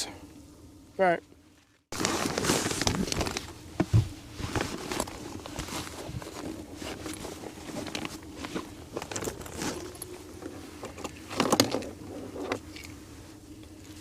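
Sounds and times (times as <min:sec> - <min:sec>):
light clinks and rustles: 0:04.7 - 0:13.0.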